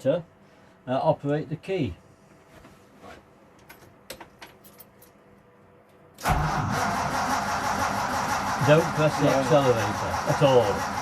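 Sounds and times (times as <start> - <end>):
van engine starting and running: 6.2 - 11.0.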